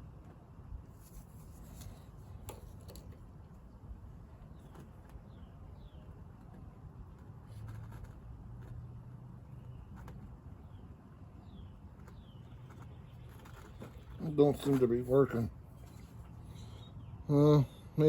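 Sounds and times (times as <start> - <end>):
faint bird chirps: 15.8 - 18.0.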